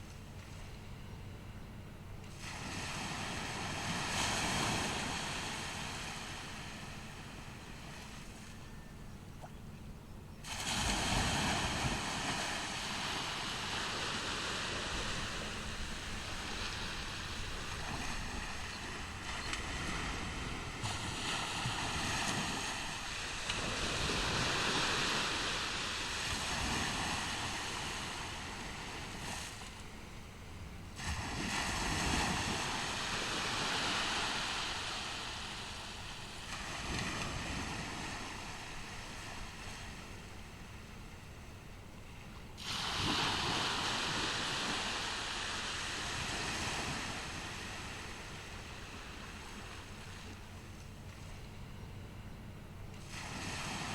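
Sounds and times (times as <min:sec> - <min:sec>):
ocean surf breaking: 0:02.3 - 0:08.3, 0:10.4 - 0:30.0, 0:31.0 - 0:40.4, 0:42.6 - 0:50.4.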